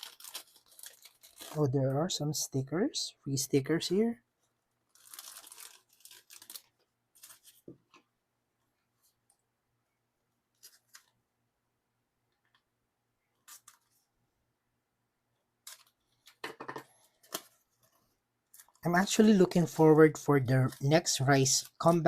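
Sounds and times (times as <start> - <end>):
plastic packaging rustling: 0.0 - 1.8, 4.9 - 8.0, 15.7 - 18.8.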